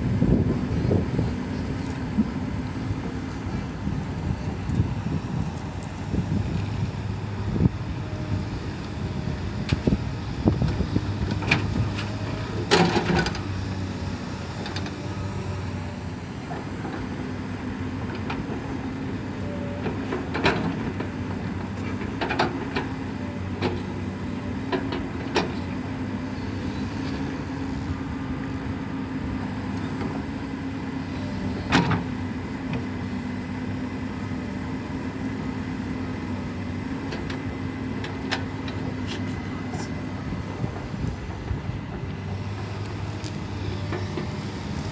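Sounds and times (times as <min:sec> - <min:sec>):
excavator diesel engine running: 0:00.0 - 0:44.9
excavator clanks and knocks: 0:09.2 - 0:27.9, 0:29.6 - 0:33.1, 0:35.0 - 0:44.9.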